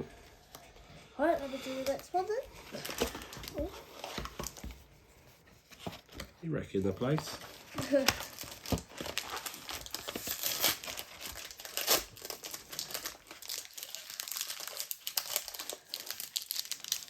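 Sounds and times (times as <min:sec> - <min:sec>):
foil wrapper crinkling and tearing: 0:07.0 - 0:17.0.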